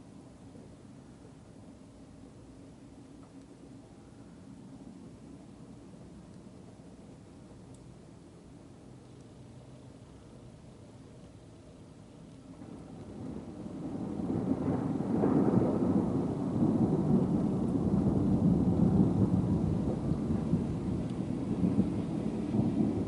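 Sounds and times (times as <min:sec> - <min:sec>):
thunder rumbling: 0:12.5 - 0:23.0.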